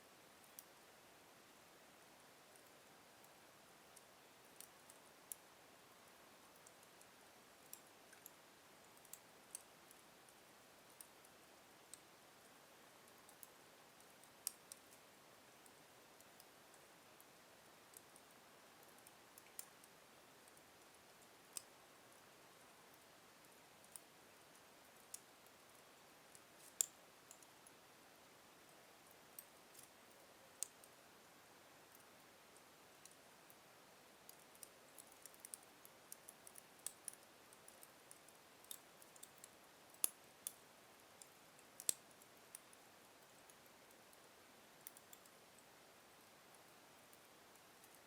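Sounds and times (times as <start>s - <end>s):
faint hiss: 0.0s - 48.0s
wood fire snaps and pops: 41.2s - 42.1s.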